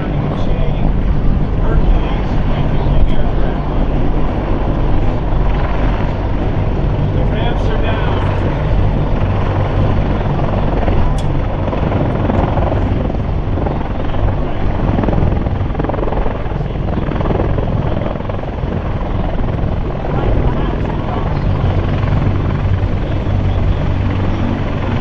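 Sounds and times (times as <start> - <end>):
helicopter flying: 0.0 - 25.0
low drone: 0.0 - 25.0.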